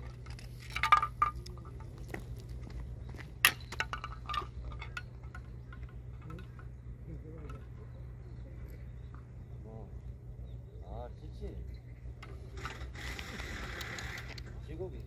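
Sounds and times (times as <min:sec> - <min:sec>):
steady low hum: 0:00.0 - 0:15.0
fishing tackle clinking: 0:03.5 - 0:08.0.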